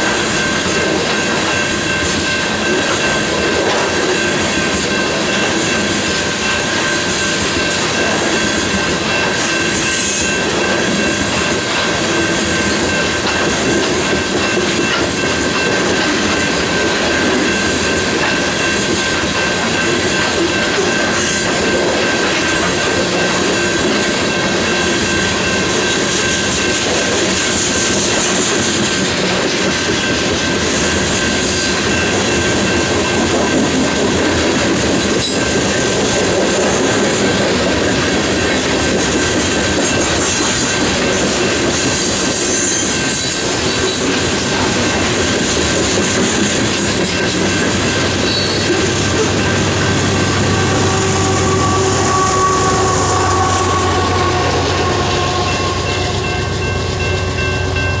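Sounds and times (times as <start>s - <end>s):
diesel locomotive engine drone: 0.0s - 58.0s
train wheel and rail noise: 0.0s - 58.0s
high wheel squeal: 42.0s - 44.0s, 48.2s - 57.0s.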